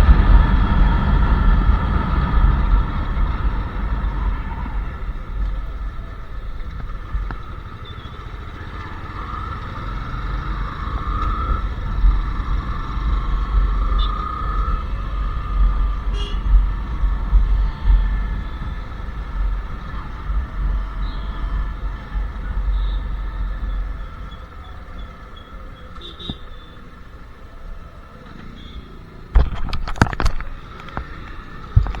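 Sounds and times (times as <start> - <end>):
motorcycle engine running: 0.0 - 26.7
motorcycle exhaust thump: 29.3 - 32.0
sharp knocks and clicks: 29.4 - 32.0.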